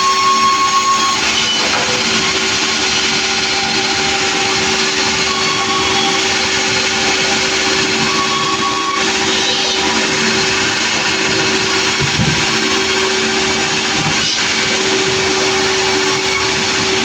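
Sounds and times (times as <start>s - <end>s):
saw running: 0.0s - 17.0s
motor humming: 1.1s - 17.0s.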